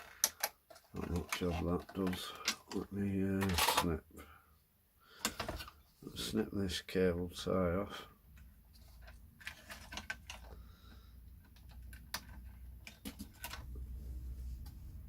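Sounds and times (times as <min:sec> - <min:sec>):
tools and plastic parts clicking: 0:00.0 - 0:04.0, 0:05.2 - 0:05.8, 0:08.3 - 0:13.8.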